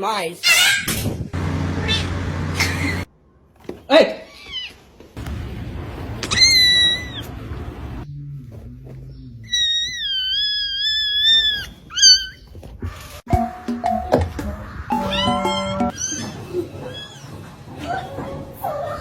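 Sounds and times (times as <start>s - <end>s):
animal high-pitched cries: 0.4s - 0.9s, 6.2s - 7.3s, 9.5s - 12.5s, 14.9s - 17.5s.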